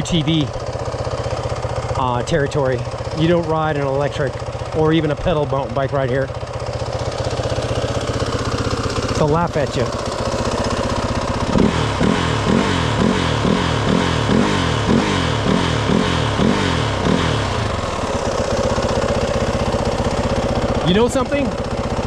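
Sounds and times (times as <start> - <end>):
engine idling: 0.0 - 22.0
utility vehicle engine revving: 6.8 - 22.0.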